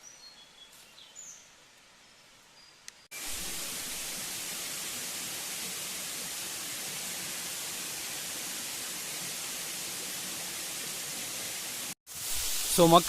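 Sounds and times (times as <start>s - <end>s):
waterfall rushing: 3.2s - 13.0s.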